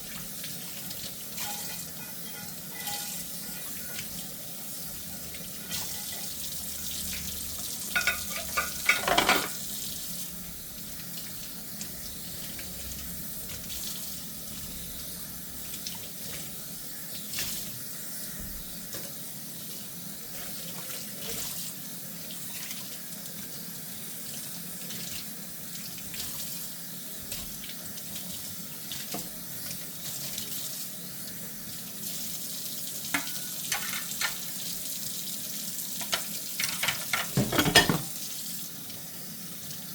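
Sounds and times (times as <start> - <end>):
tap water running into sink: 0.0 - 39.9
dishes clinking together: 1.4 - 4.1, 7.9 - 9.6, 33.1 - 34.4, 36.1 - 38.2.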